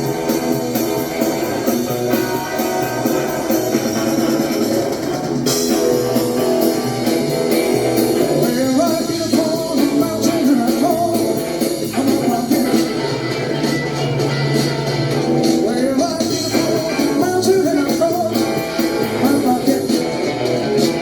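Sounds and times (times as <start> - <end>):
guitar rock and roll music: 0.0 - 21.0
person singing: 8.2 - 14.7, 15.4 - 20.4.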